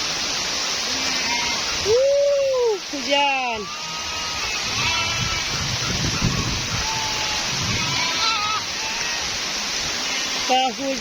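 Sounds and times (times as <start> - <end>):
steady rain falling: 0.0 - 11.0
goats bleating faintly: 0.8 - 1.7, 3.4 - 9.3.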